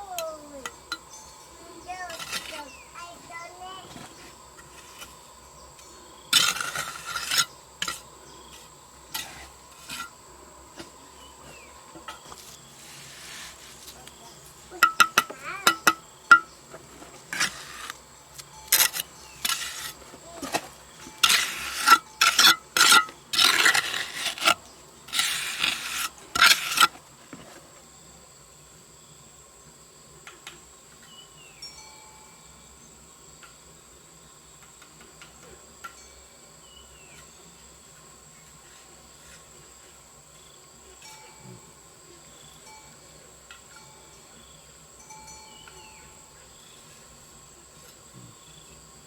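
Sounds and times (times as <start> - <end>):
faint steady high whine: 0.0 - 49.0
scraping and clattering hand work: 1.7 - 27.7.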